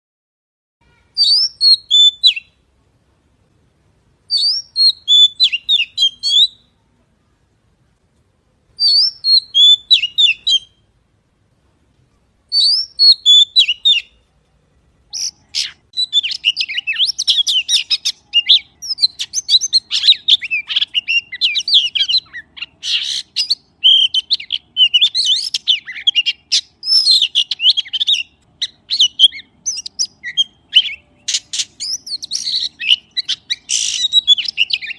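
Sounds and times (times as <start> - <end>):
magpie chirping and whistling: 1.2 - 2.6, 4.3 - 6.7, 8.8 - 10.8, 12.5 - 14.2, 15.1 - 34.9.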